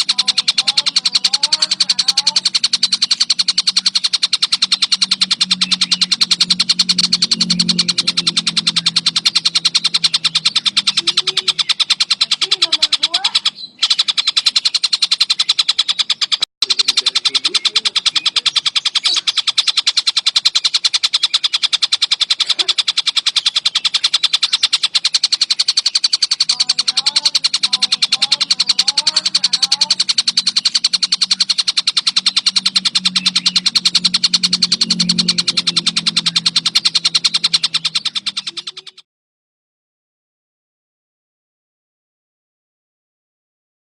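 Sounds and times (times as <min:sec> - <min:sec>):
kingfisher rattling call: 0:00.0 - 0:39.0.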